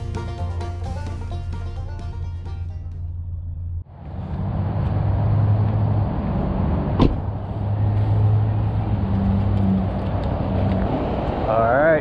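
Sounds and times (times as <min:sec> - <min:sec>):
low hum: 0:00.0 - 0:06.6
highway traffic roar: 0:00.0 - 0:12.0.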